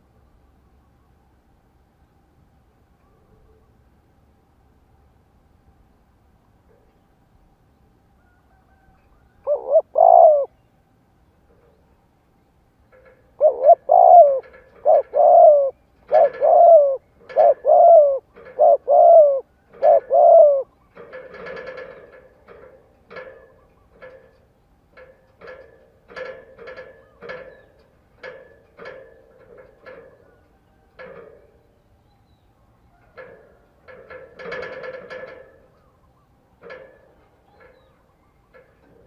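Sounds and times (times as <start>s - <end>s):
dove cooing: 8.8s - 10.6s, 12.9s - 24.3s.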